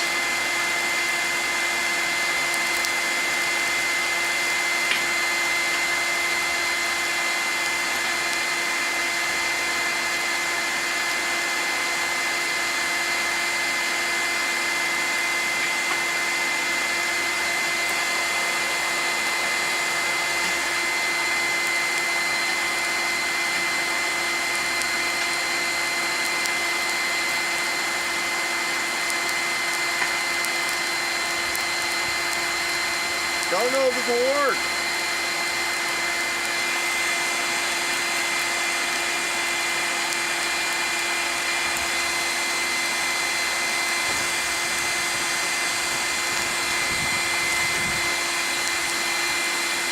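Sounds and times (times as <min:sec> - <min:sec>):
electric air blower whooshing: 0:00.0 - 0:49.9
steady high whine: 0:13.0 - 0:49.9.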